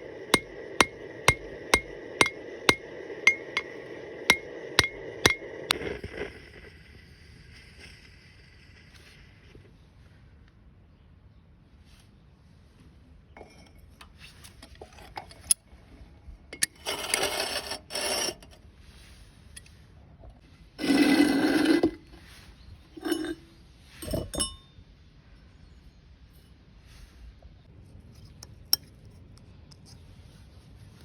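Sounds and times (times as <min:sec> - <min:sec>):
rasping strokes on metal: 0:00.0 - 0:03.7, 0:04.3 - 0:05.5, 0:16.6 - 0:18.6, 0:20.8 - 0:22.1.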